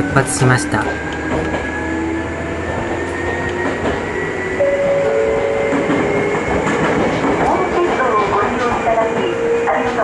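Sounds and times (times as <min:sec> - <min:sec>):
train wheels rumbling on rail: 0:00.0 - 0:10.0
light track knocks: 0:02.8 - 0:09.3.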